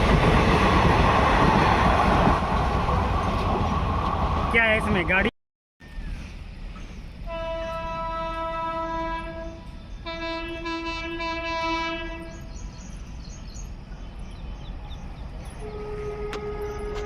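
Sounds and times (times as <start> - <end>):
train rumble: 0.0 - 17.0
locomotive horn blasts: 7.3 - 12.4, 15.6 - 17.0.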